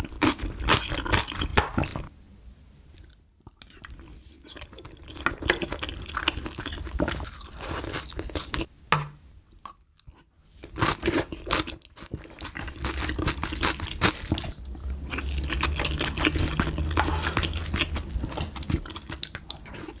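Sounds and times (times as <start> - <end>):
wet chewing and mouth smacking: 9.6 - 20.0.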